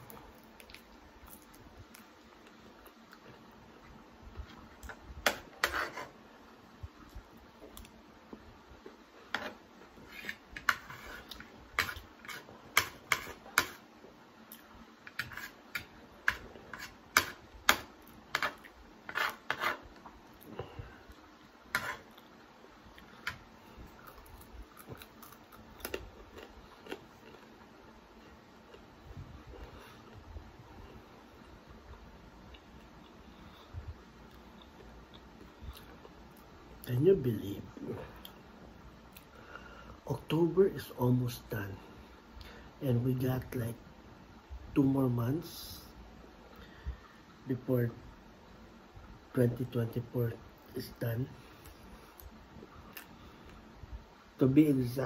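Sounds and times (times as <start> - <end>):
crunchy biting and chewing: 24.0 - 27.5.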